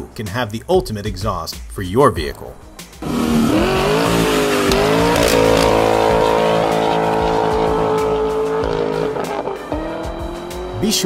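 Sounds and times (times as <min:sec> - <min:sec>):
car engine accelerating: 0:03.0 - 0:11.0.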